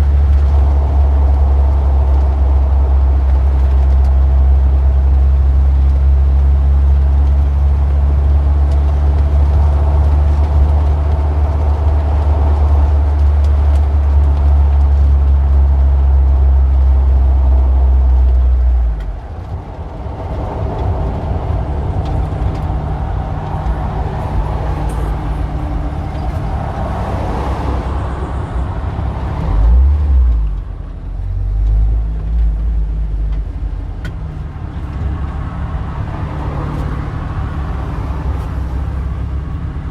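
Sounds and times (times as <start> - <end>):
vehicle engine idling: 0.0 - 29.4
cars passing: 0.0 - 39.9.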